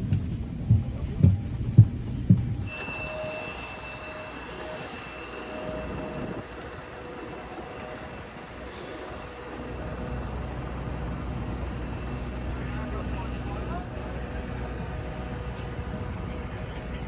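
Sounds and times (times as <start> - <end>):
high steady whine: 0.0 - 17.0
vehicle hum: 4.4 - 17.0.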